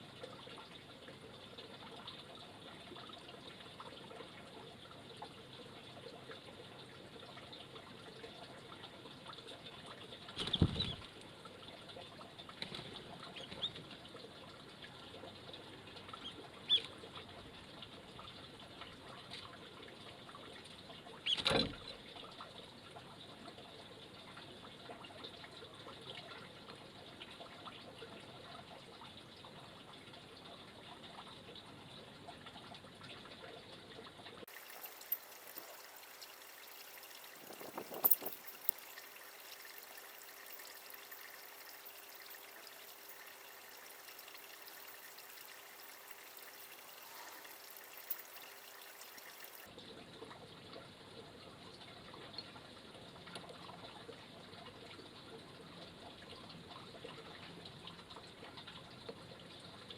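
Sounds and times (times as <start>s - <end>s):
water trickling: 0.0s - 59.9s
small birds chirping: 16.2s - 16.9s.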